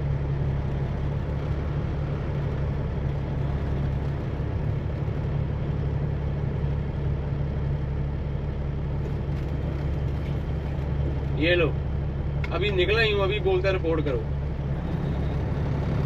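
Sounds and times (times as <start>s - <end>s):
diesel truck engine humming: 0.0s - 16.0s.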